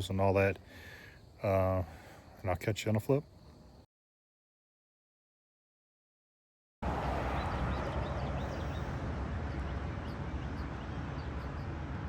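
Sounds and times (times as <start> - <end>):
small birds chirping: 7.2 - 12.0.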